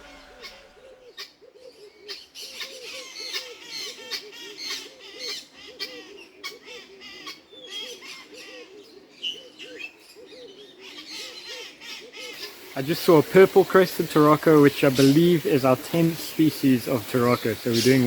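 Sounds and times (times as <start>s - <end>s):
bird chirps and squawks: 0.0s - 12.8s
low hooting bird calls: 0.0s - 18.0s.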